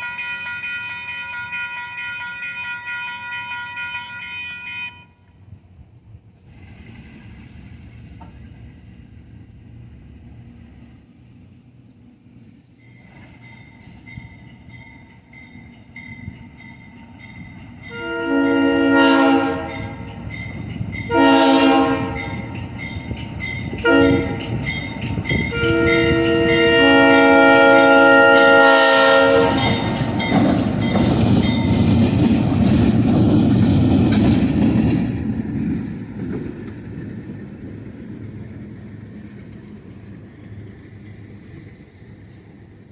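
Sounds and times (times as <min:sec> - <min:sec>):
locomotive air horn: 0:00.0 - 0:05.3, 0:17.9 - 0:20.1, 0:21.1 - 0:22.5, 0:23.8 - 0:24.5, 0:25.5 - 0:30.0
train rumbling past: 0:00.0 - 0:42.9.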